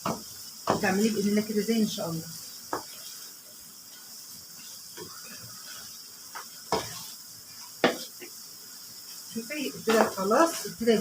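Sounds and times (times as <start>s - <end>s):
spoon knocking against pan: 0.0s - 0.9s, 6.3s - 7.0s, 7.8s - 8.1s
meat sizzling in oil: 0.0s - 11.0s.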